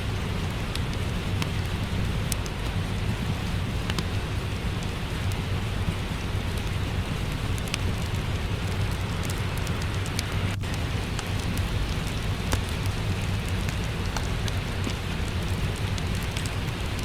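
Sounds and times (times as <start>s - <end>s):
steady rain: 0.0s - 17.0s
wood fire crackling: 0.0s - 17.0s.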